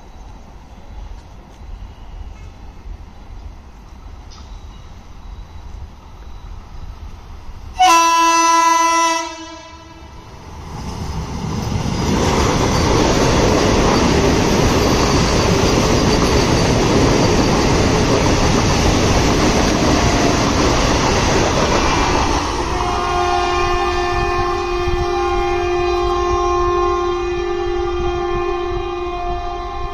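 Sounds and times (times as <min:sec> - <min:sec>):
train passing with wheel clatter: 0:00.0 - 0:29.9
train horn: 0:07.8 - 0:10.2, 0:22.6 - 0:29.9.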